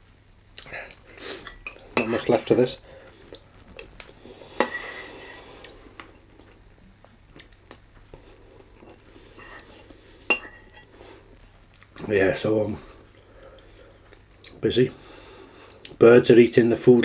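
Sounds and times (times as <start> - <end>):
faint small ticks: 0.4 - 9.5.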